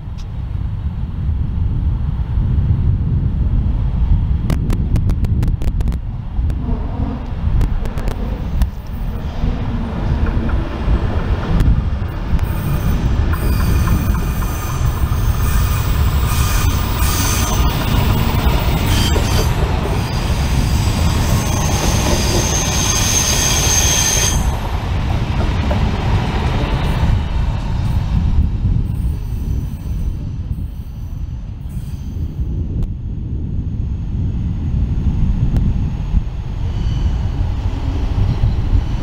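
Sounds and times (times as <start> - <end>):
train rumbling past: 0.0 - 39.0
wheel squeal: 12.4 - 24.6.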